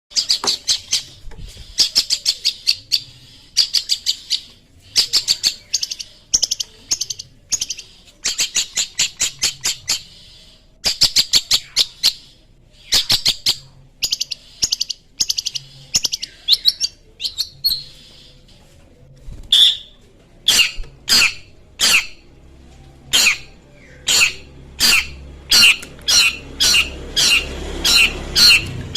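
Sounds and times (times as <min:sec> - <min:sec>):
bird chattering song: 0:00.1 - 0:18.5, 0:19.5 - 0:22.3, 0:23.0 - 0:28.9
bird downward-sweeping calls: 0:23.1 - 0:28.9.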